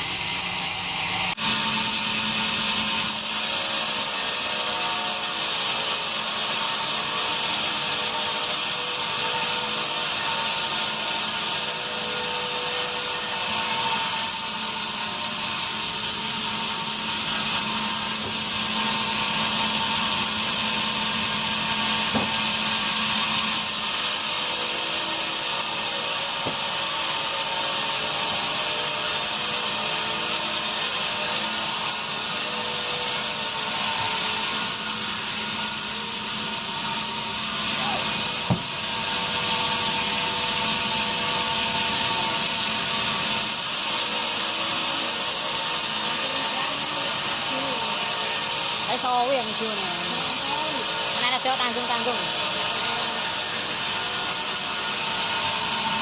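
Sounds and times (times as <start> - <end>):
band saw cutting wood: 0.0 - 56.0.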